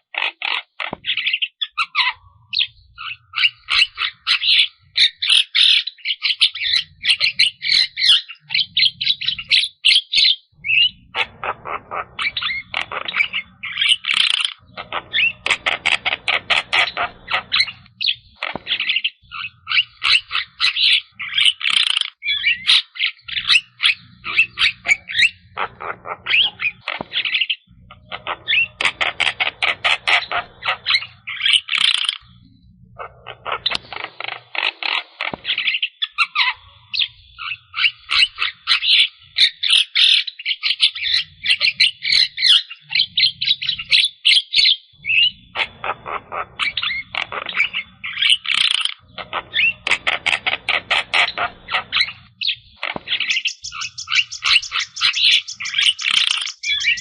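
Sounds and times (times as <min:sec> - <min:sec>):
myna chattering song: 0:24.2 - 0:27.1.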